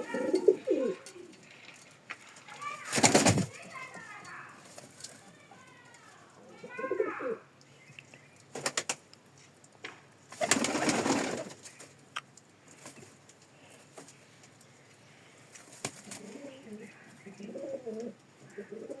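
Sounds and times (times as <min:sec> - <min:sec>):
pigeons cooing: 0:00.0 - 0:01.5, 0:16.0 - 0:19.0
loud rustling: 0:02.4 - 0:06.2.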